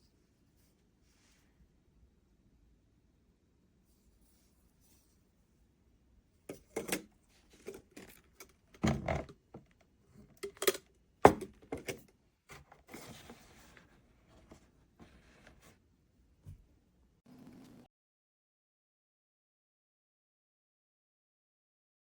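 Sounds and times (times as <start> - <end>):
soft rustle: 0.1 - 1.6.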